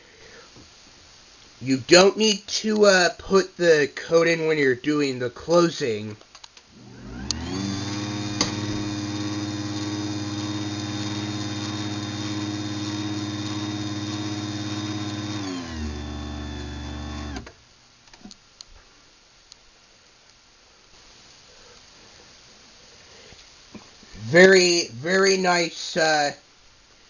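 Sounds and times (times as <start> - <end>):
garage door opener motor whine: 6.8 - 17.5.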